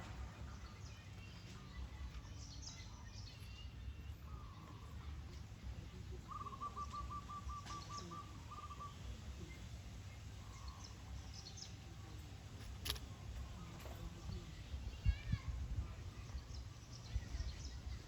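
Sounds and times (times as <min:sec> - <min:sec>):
bird calling: 0:06.3 - 0:09.2
sharp click: 0:12.6 - 0:13.1.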